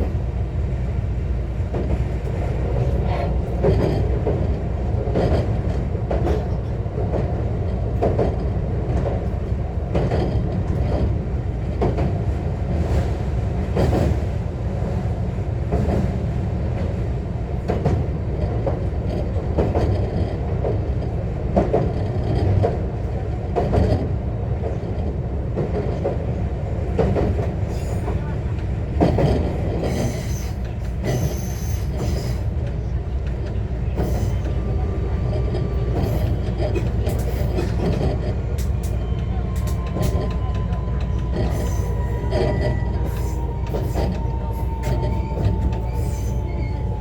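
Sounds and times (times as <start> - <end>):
train wheels rumbling on rail: 0.0 - 47.0
wheels clacking over rail joints: 16.8 - 47.0.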